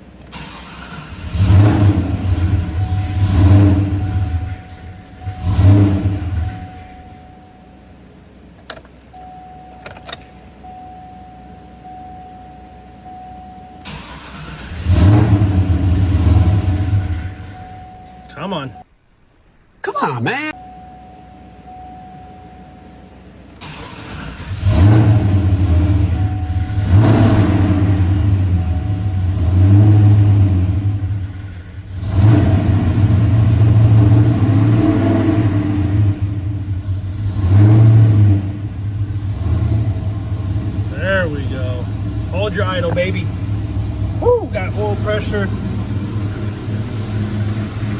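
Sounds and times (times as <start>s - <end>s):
engine cranking and running roughly: 0.2s - 7.2s, 13.8s - 17.8s, 23.6s - 47.9s.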